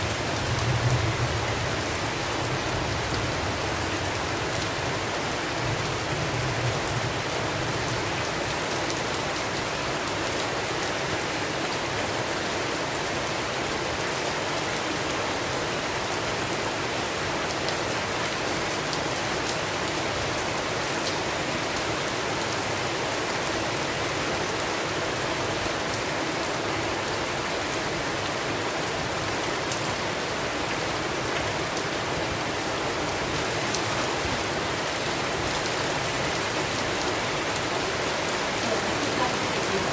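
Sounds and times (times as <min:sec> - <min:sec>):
heavy rain hissing: 0:23.7 - 0:39.9.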